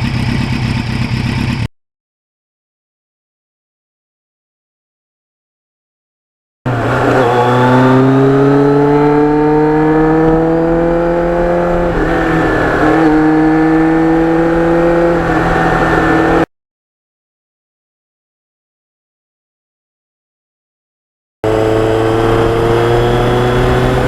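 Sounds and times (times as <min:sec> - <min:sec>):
motorcycle engine accelerating: 0:00.0 - 0:01.7, 0:06.7 - 0:16.5, 0:21.4 - 0:24.0.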